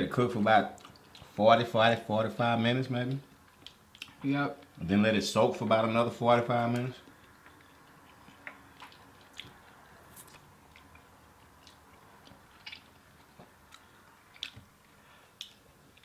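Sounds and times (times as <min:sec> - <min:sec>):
chewing and mouth smacks: 0:00.7 - 0:01.4, 0:03.1 - 0:04.8, 0:06.7 - 0:16.0.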